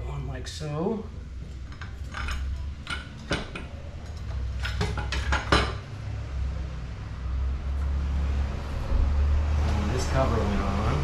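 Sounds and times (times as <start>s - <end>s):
metal parts clinking: 1.7s - 5.8s.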